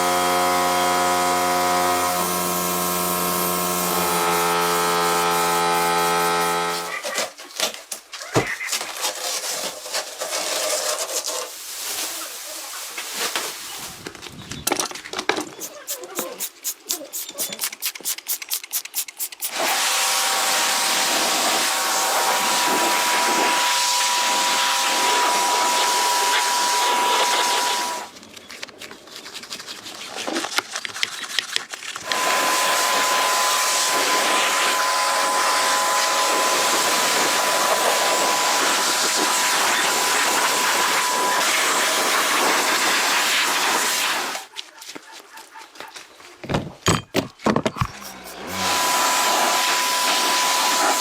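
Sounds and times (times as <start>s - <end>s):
hissing machine with faint whine: 20.2s - 28.1s.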